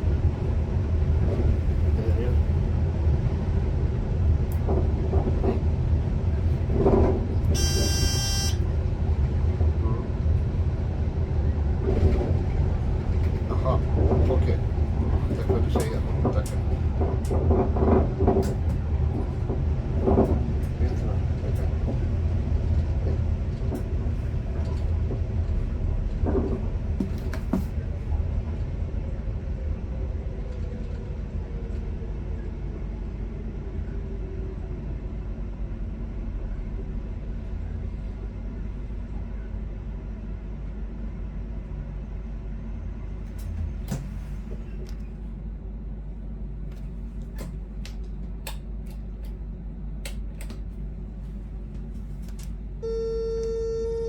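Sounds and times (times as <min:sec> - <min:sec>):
train running rumble: 0:00.0 - 0:54.0
electric train whine: 0:07.1 - 0:13.2
cab beep: 0:07.6 - 0:08.6, 0:52.8 - 0:54.0.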